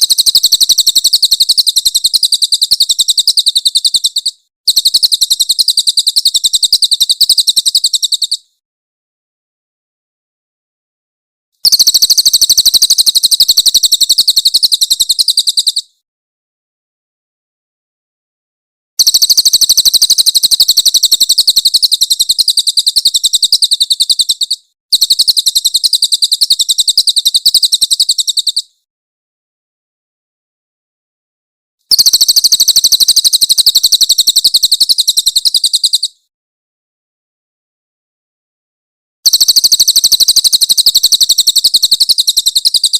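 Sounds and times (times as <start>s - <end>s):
jay shrill rattling call: 0.0s - 8.4s, 31.9s - 36.1s, 39.3s - 42.9s.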